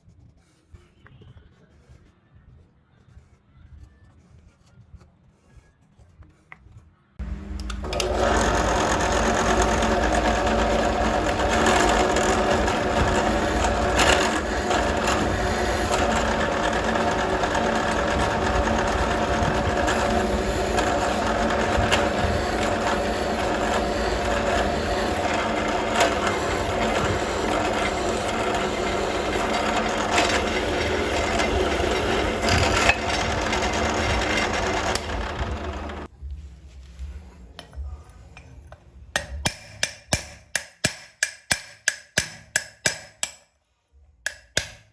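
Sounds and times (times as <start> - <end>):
power tool grinding steel: 7.2 - 36.1.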